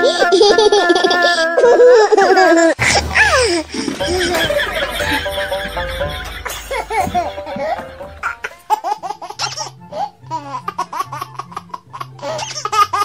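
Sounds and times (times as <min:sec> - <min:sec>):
music with bouncing bass: 0:02.8 - 0:09.7.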